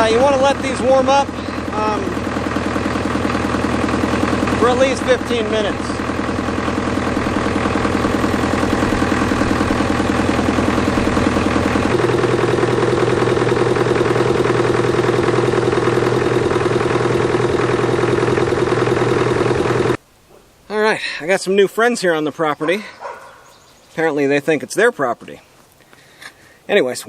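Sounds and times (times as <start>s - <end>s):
diesel tractor engine idling: 0.0s - 21.3s.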